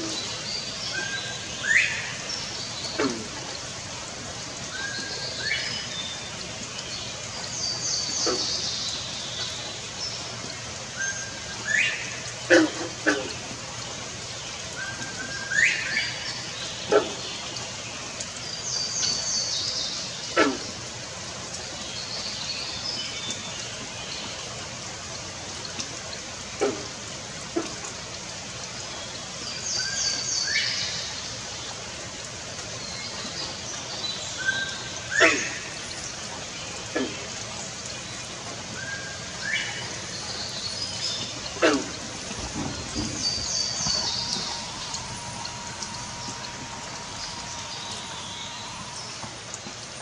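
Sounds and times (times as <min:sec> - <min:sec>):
songbird singing: 0:00.0 - 0:03.3, 0:14.5 - 0:17.4, 0:38.8 - 0:50.0
steady background hiss: 0:00.0 - 0:50.0.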